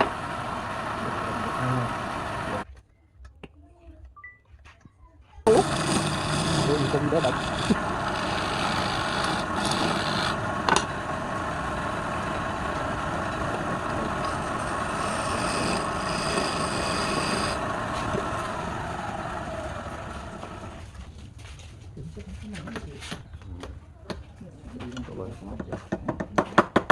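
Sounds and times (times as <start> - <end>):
high whine: 0.0 - 2.6, 5.5 - 20.8
wood lathe motor running: 0.0 - 2.6, 5.5 - 20.9.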